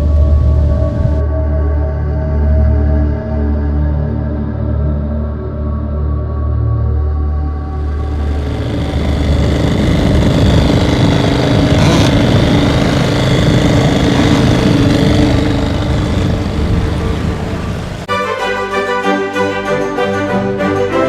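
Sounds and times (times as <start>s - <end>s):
outboard motor running: 7.6s - 18.1s.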